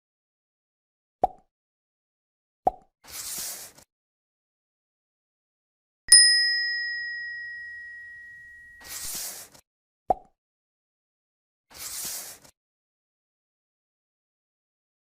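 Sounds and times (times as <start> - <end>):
bell-like ding: 6.1 - 9.0.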